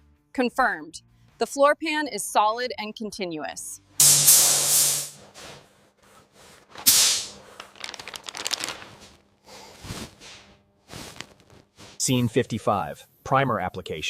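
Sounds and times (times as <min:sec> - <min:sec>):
spray gun hissing: 0:04.0 - 0:05.2, 0:06.9 - 0:07.3.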